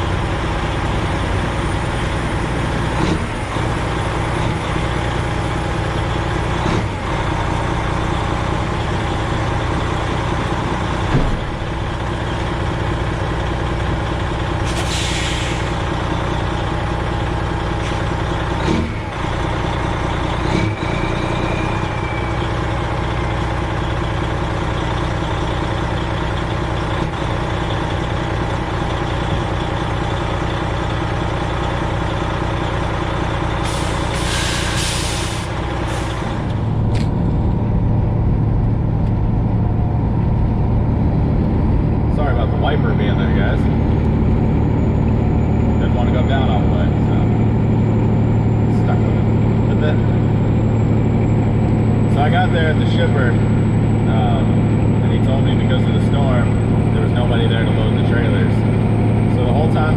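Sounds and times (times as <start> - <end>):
diesel truck engine droning: 0.0 - 59.9
air hiss: 14.7 - 15.8, 33.7 - 36.2.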